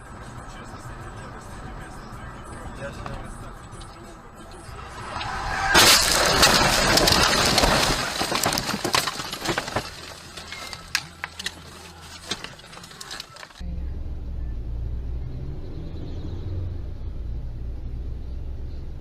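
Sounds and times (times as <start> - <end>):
broken glass and debris clattering: 5.2 - 13.6
car driving rumble from inside: 13.6 - 19.0.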